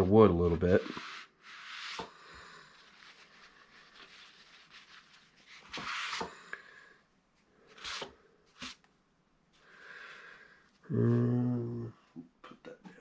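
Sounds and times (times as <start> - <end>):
rubbing on wooden cutting board: 2.8 - 6.2.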